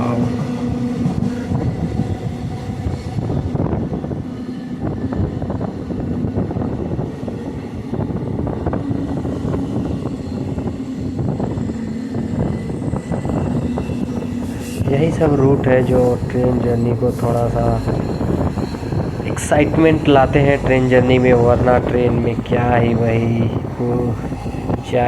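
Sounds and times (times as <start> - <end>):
train rumble and hum: 0.0 - 25.0
wheels clicking on track: 13.2 - 25.0.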